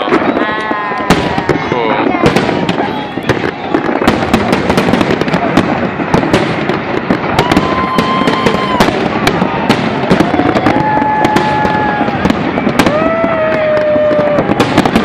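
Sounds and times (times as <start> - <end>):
fireworks bangs and crackles: 0.0 - 15.0
fireworks whistles: 0.0 - 15.0.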